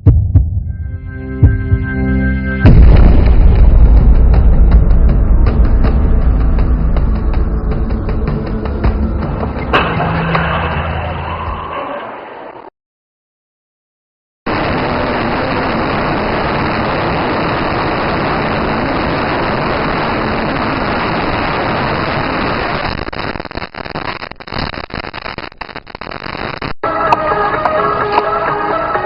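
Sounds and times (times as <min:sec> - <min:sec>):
music: 0:00.0 - 0:11.9, 0:26.8 - 0:29.0.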